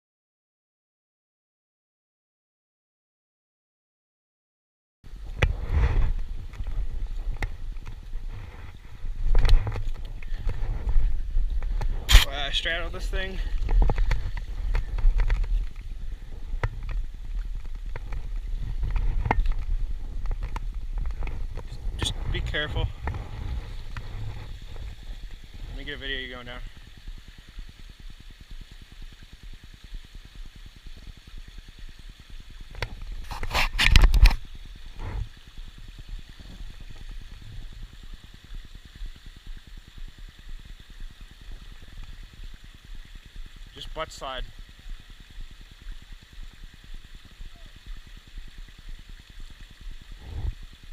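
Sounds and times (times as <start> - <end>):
wind and handling rumble: 5.1 - 27.0
clicks and knocks on rocks: 9.2 - 12.4, 13.5 - 15.9, 16.6 - 22.1.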